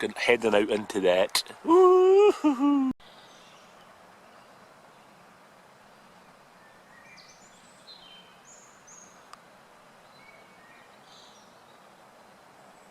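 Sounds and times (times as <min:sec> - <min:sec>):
steady outdoor hiss: 0:00.0 - 0:12.9
birds chirping: 0:05.9 - 0:09.3.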